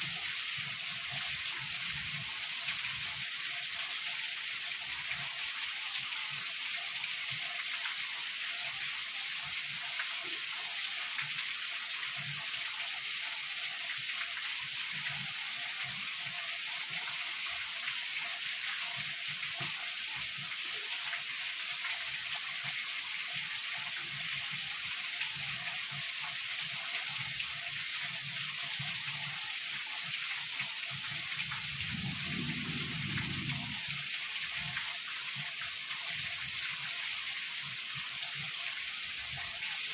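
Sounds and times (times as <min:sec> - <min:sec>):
heavy rain falling: 0:31.2 - 0:36.6
low rumble of thunder: 0:31.6 - 0:34.1.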